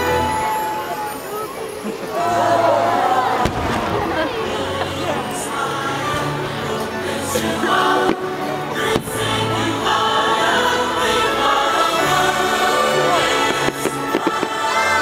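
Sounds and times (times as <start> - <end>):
choral music over speakers: 2.1 - 15.0
firework bangs: 3.4 - 4.4.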